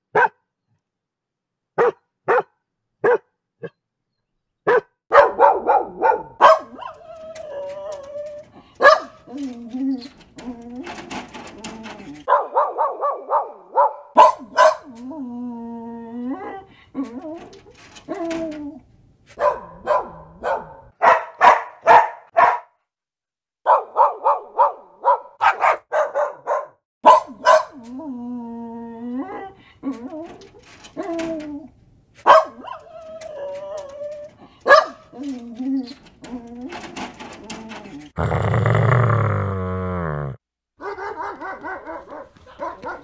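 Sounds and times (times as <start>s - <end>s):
dog barking: 0.1s - 0.4s, 1.8s - 3.8s, 4.6s - 7.0s, 8.8s - 9.3s, 12.3s - 15.0s, 19.4s - 22.8s, 23.6s - 27.9s, 32.2s - 32.9s, 34.6s - 35.2s, 40.8s - 43.0s.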